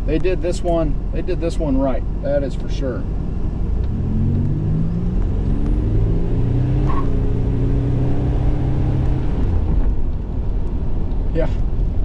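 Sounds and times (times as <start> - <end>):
car engine accelerating: 3.1 - 11.0.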